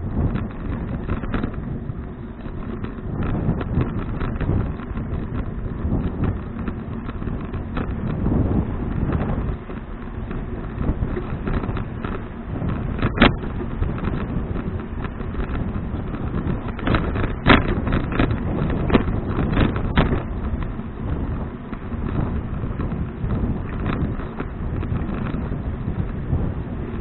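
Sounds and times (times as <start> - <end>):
bicycle road rumble: 0.0 - 27.0
wind buffeting microphone: 0.0 - 27.0
sharp knocks or rattles: 9.0 - 20.8.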